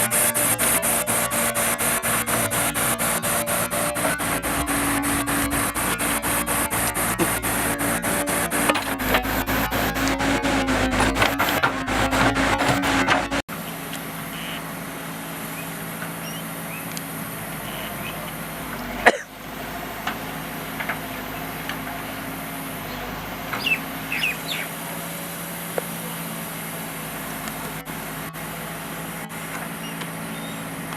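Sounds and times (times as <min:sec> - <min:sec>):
diesel engine running: 0:00.0 - 0:30.9
chickens chirping: 0:22.8 - 0:24.8.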